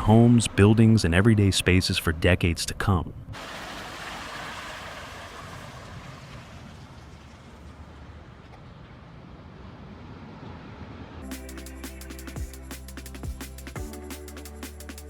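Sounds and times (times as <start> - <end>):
steady rushing noise: 9.9 - 15.0.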